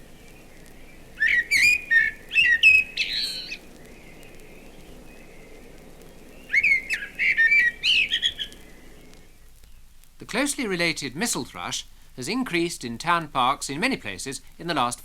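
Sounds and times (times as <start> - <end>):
blackbird singing: 0.0 - 5.5, 6.3 - 9.1.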